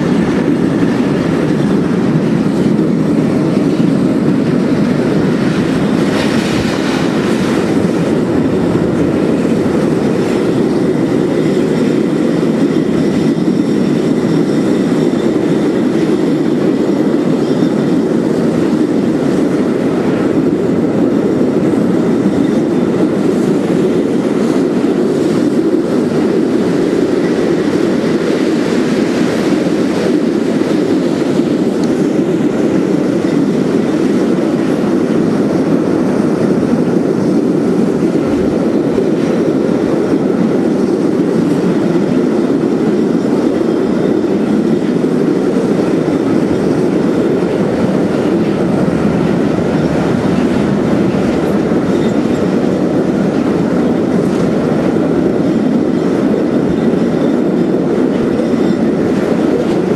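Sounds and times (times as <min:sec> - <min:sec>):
train wheels rumbling on bridge: 0:00.0 - 0:59.9.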